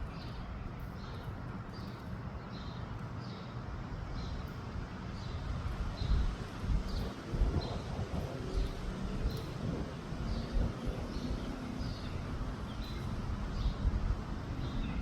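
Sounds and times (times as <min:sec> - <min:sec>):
wind buffeting microphone: 0:04.6 - 0:15.0.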